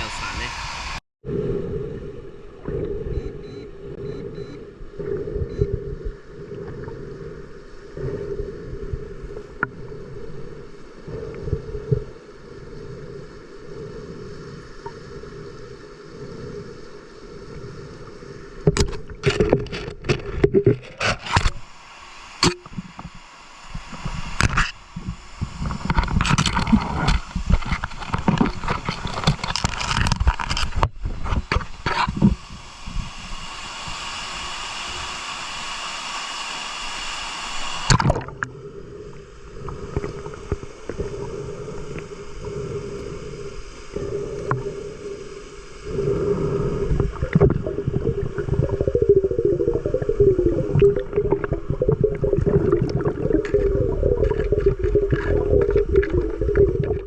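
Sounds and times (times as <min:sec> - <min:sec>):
dull rumble: 0:00.0 - 0:21.7, 0:38.0 - 0:57.0
low hum: 0:00.0 - 0:57.0
muffled water noise: 0:00.0 - 0:57.0.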